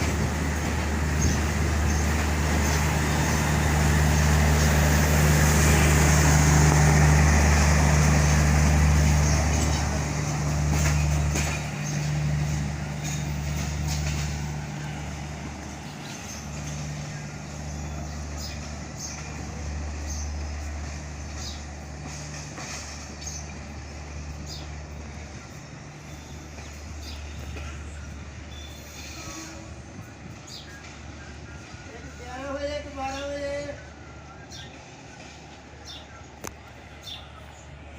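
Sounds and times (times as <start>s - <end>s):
train rolling drone: 0.0s - 37.9s
wheels clicking over rail joints: 6.8s - 25.8s.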